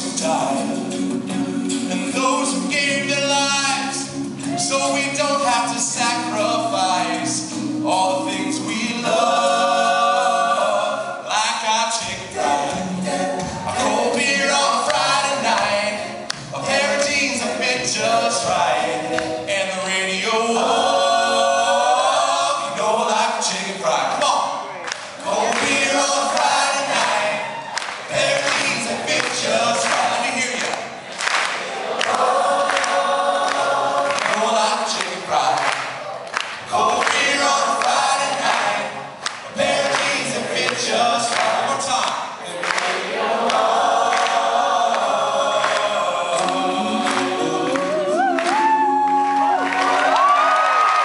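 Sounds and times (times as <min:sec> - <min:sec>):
male vocal group singing: 0:00.0 - 0:36.0, 0:36.6 - 0:50.3.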